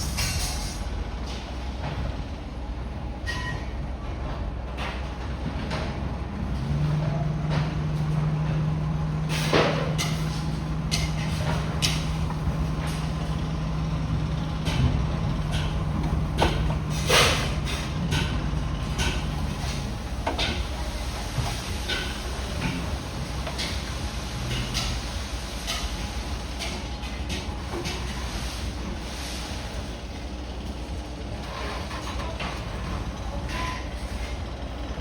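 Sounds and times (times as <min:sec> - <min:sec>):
bulldozer diesel engine running: 0:00.0 - 0:35.0.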